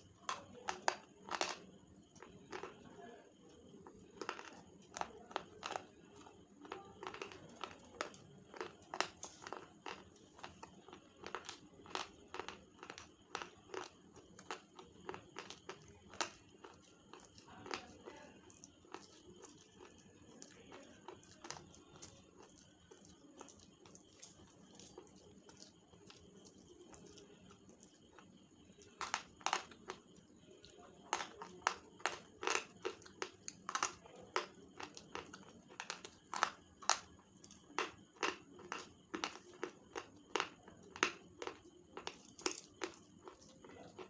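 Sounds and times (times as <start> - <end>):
chalky crunching chewing: 3.8 - 44.0.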